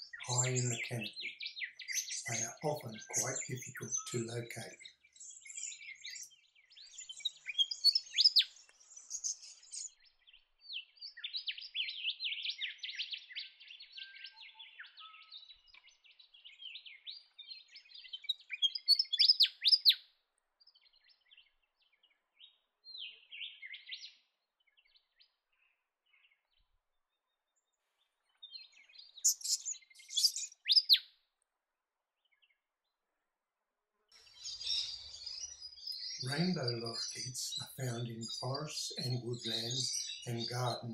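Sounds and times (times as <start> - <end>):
lorikeets screeching: 0.0 - 4.8, 29.2 - 31.0, 34.3 - 40.9.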